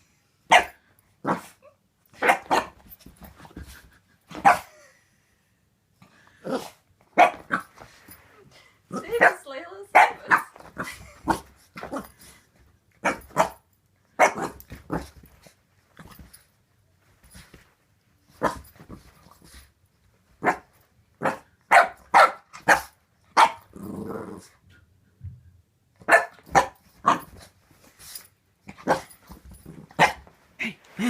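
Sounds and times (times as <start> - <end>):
puppy barking: 0.5 - 1.5, 9.2 - 10.5, 21.2 - 23.6, 26.1 - 27.2
puppy growling: 23.7 - 24.5.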